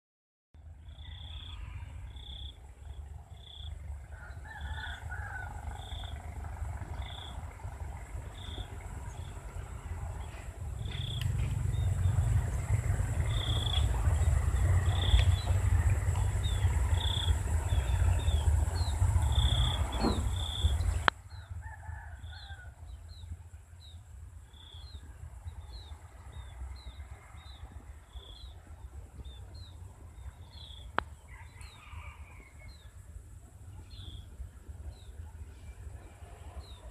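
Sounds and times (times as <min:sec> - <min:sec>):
heavy low rumble: 0:00.6 - 0:21.4
lower bird calls: 0:00.8 - 0:33.0.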